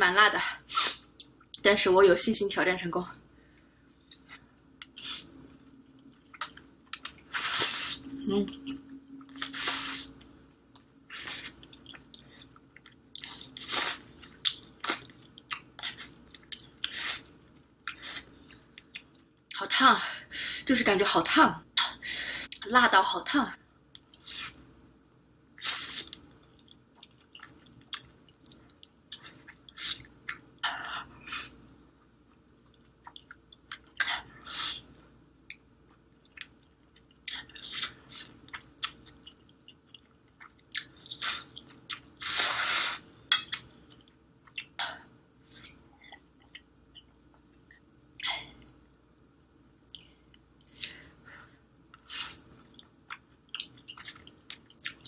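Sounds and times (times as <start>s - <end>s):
wet chewing and smacking: 10.2s - 19.2s, 32.3s - 34.1s, 35.4s - 42.2s, 51.8s - 55.0s.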